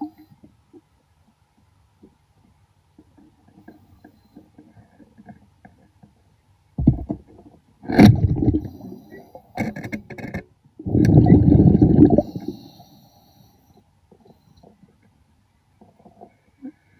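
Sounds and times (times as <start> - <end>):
faint underwater crackle: 0.0 - 16.9
air bubbling underwater: 7.9 - 8.8, 10.8 - 12.6.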